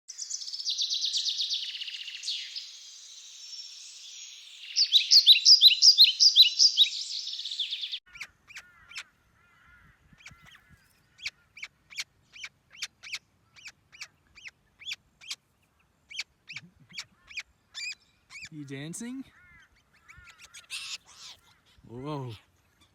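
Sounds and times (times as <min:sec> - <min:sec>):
sharp single bird calls: 0:04.6 - 0:09.6
parrots screeching: 0:19.4 - 0:21.6.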